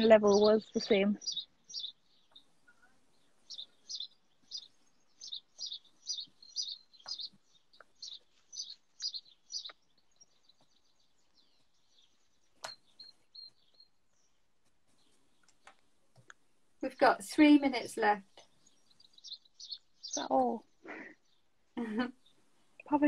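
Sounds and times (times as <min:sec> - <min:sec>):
small bird chirping: 0:00.0 - 0:16.5, 0:17.5 - 0:23.0.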